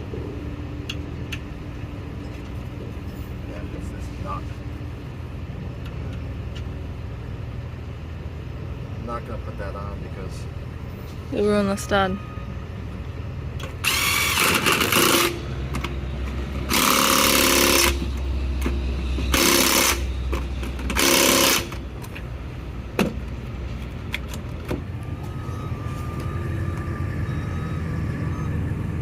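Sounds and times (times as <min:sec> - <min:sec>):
steady low hum: 0:00.0 - 0:29.0
power tool running: 0:13.8 - 0:15.5, 0:16.6 - 0:21.8.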